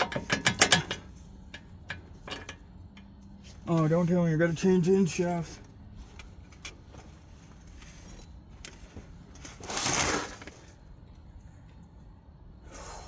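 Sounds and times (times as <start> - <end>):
faint clicks of parts handled: 5.6 - 9.6.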